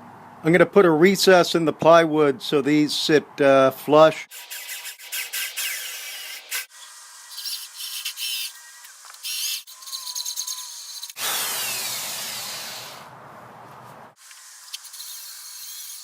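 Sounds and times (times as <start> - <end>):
power tool cutting plywood: 4.3 - 13.0, 14.2 - 16.0.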